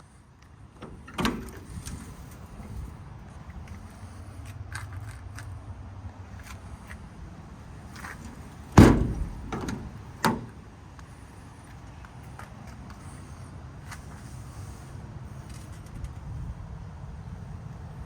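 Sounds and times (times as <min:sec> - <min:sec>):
metal door slamming shut: 0:00.8 - 0:01.7, 0:08.2 - 0:10.6
light clunk: 0:08.0 - 0:10.6.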